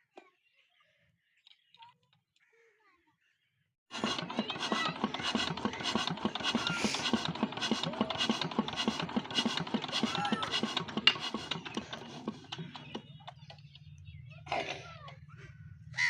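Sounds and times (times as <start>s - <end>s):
diesel engine chugging: 3.9s - 16.0s.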